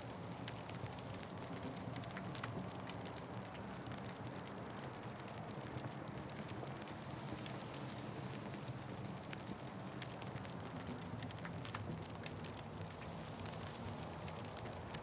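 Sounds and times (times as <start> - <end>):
low rumble of flames: 0.2 - 15.0
wood fire crackling: 2.8 - 15.0.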